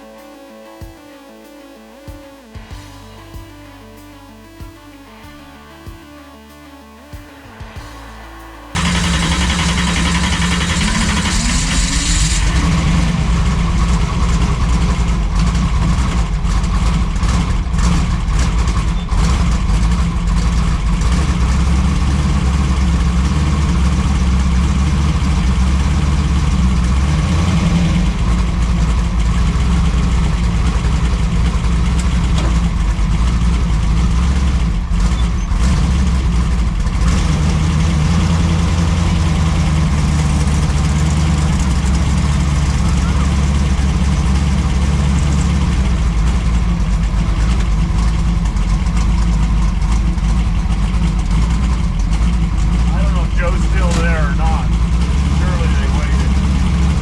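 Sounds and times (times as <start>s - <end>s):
car engine rumbling: 7.4s - 57.0s.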